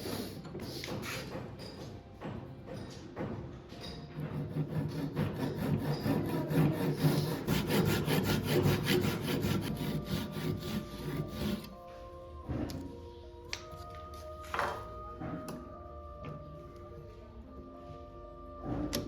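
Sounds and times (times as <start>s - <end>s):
rasp filing wood: 0.0s - 1.4s, 4.1s - 11.8s.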